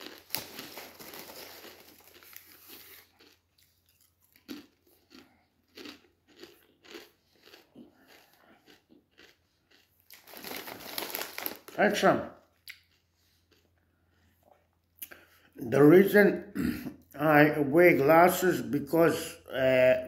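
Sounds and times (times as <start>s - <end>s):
potato chips being chewed: 0.0s - 15.4s.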